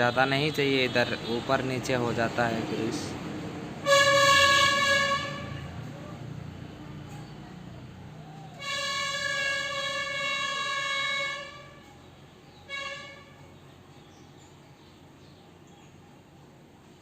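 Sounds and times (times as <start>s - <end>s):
vehicle horn honking: 3.8s - 5.8s, 8.6s - 11.9s, 12.6s - 13.6s.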